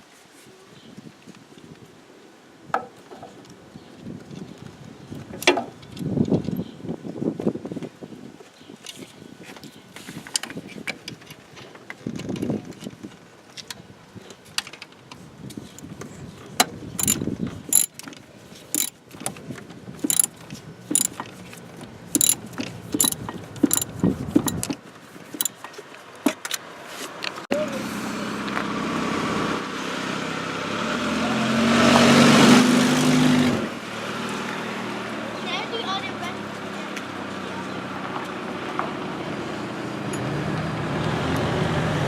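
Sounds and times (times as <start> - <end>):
ratchet wrench clicking: 17.0 - 17.9, 18.8 - 19.0, 20.1 - 20.3, 20.9 - 21.2, 22.2 - 22.4, 23.0 - 24.7
metal tool clicks: 17.0 - 18.0, 18.8 - 19.0, 20.0 - 20.3, 20.9 - 21.2, 22.2 - 22.4, 23.0 - 24.7, 25.4 - 25.6.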